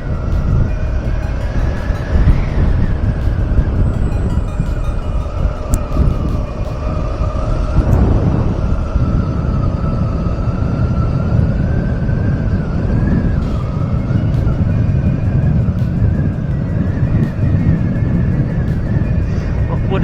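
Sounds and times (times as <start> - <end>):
thin high whine: 0.0 - 20.0
wind noise: 0.0 - 20.0.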